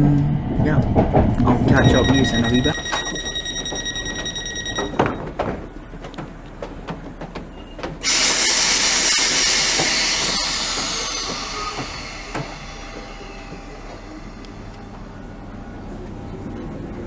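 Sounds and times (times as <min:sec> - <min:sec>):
train rushing: 0:00.0 - 0:05.0, 0:06.7 - 0:16.8
high-pitched whine: 0:01.6 - 0:05.1, 0:08.0 - 0:15.3.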